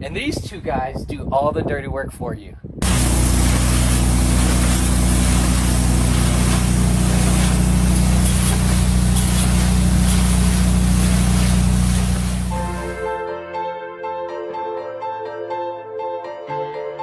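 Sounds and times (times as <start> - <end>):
high-pressure water spray hiss: 2.8 - 12.6
machine drone: 2.8 - 12.9.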